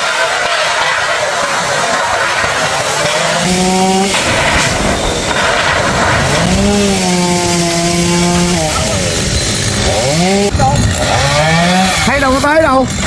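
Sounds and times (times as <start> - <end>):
chainsaw engine revving: 0.0 - 13.0.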